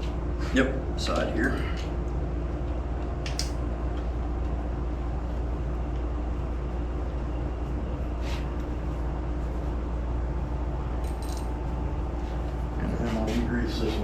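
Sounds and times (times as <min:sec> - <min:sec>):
low mechanical hum: 0:00.0 - 0:14.0
light click: 0:03.3 - 0:03.6.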